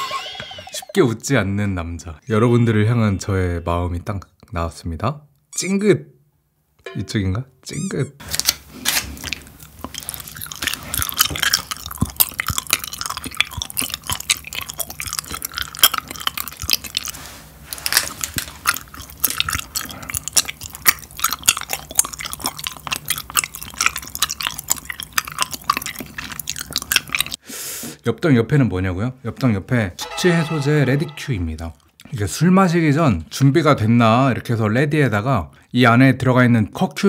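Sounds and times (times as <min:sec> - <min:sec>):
wet chewing and lip smacks: 0:08.3 - 0:27.4.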